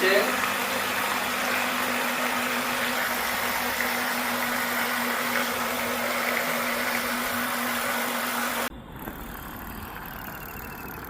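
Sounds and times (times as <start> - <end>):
small electric motor humming: 0.0 - 11.0.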